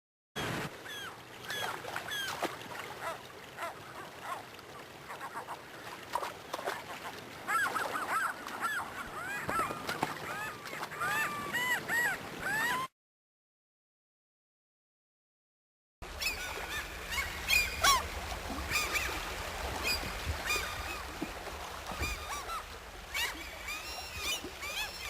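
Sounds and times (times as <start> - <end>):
flock of birds calling: 16.1 - 18.1, 18.7 - 21.2, 21.9 - 25.0.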